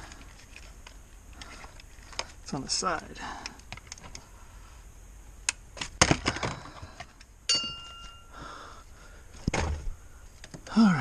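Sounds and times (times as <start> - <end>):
metallic clink with ringing: 7.5 - 8.3.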